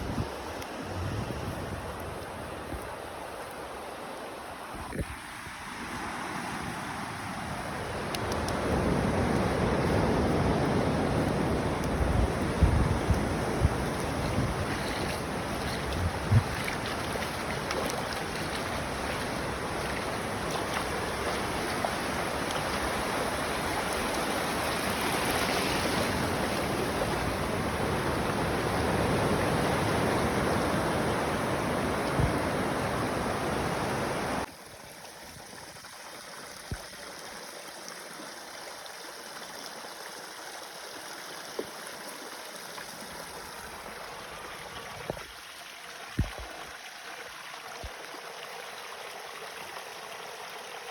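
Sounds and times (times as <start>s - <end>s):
surf and wind rushing: 0.0s - 34.5s.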